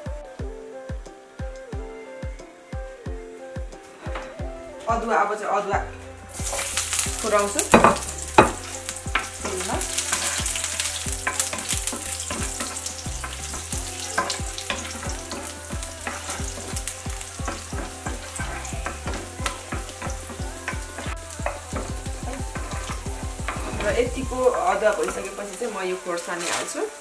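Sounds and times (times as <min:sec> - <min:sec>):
wooden spatula stirring in pan: 0:05.8 - 0:27.0
ginger sizzling in hot oil: 0:06.3 - 0:27.0.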